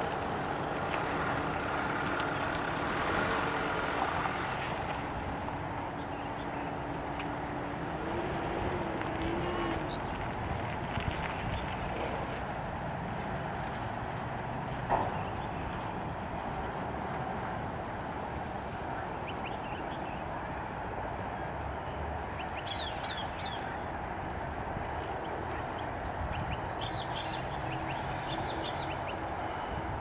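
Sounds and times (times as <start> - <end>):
birds chirping: 24.7 - 29.8.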